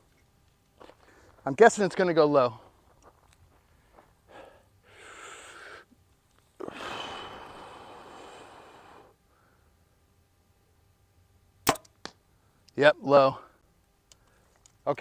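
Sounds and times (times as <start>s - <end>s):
person breathing: 1.0s - 1.4s, 3.6s - 6.0s, 6.6s - 9.8s
bow shot crack: 11.6s - 12.2s.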